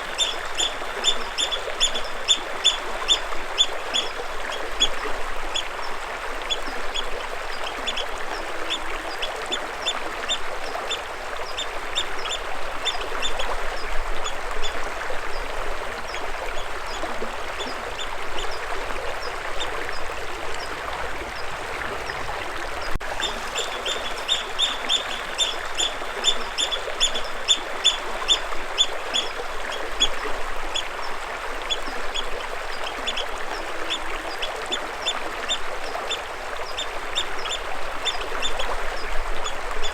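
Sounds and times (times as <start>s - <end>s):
running water: 0.0s - 39.9s
birds chirping: 22.8s - 28.4s.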